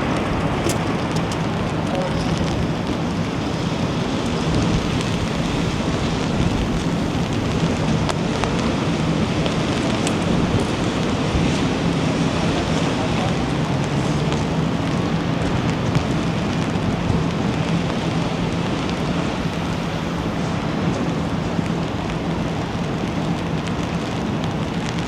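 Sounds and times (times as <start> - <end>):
rain and wind hiss: 0.0 - 25.0
raindrop ticks: 20.9 - 25.0.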